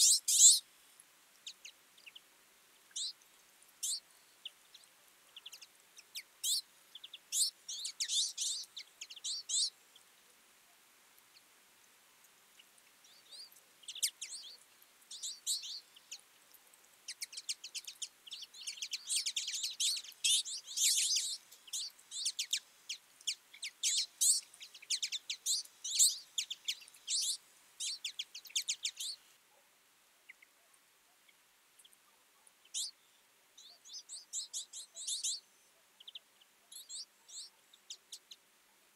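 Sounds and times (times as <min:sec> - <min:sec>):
flock of birds twittering: 0:00.0 - 0:00.7, 0:01.4 - 0:10.1, 0:12.5 - 0:29.4, 0:31.2 - 0:38.4.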